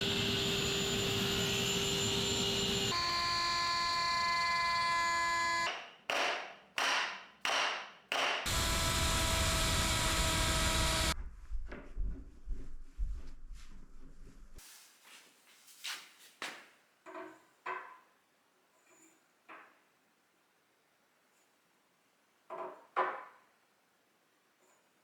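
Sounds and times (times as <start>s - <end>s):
power tool cutting: 0.0s - 5.7s, 8.5s - 11.2s
power tool whining: 0.0s - 5.7s, 8.5s - 11.2s.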